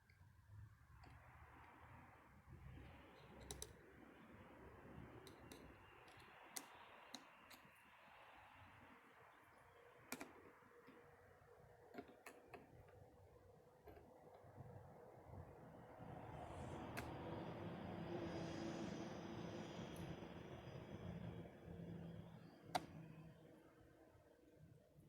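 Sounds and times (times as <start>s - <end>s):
faint hiss: 15.8s - 23.6s.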